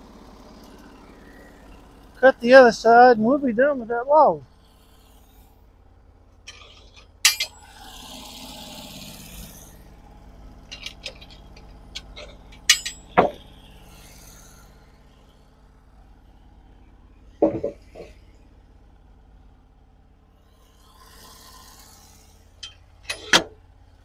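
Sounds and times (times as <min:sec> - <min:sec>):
wood pieces knocking and clinking: 0:06.5 - 0:07.5, 0:10.7 - 0:13.4, 0:17.4 - 0:18.1.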